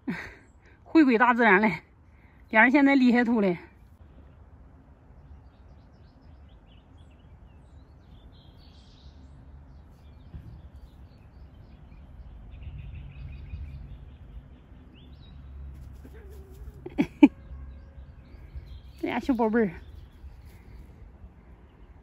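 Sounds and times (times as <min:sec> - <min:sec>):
bird chirps: 0:05.2 - 0:16.6.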